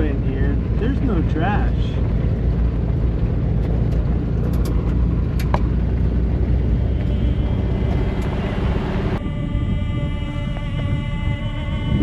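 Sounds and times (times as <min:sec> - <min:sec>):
engine running while driving: 0:00.0 - 0:12.0
sharp rattles and clicks: 0:01.9 - 0:06.1.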